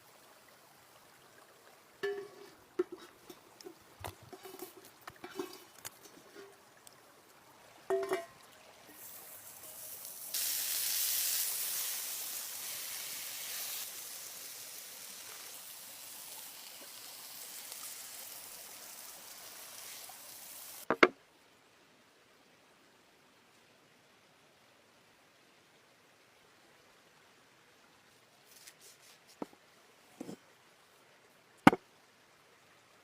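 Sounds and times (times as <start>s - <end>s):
food sizzling in a pan: 4.3s - 6.5s, 7.9s - 20.9s.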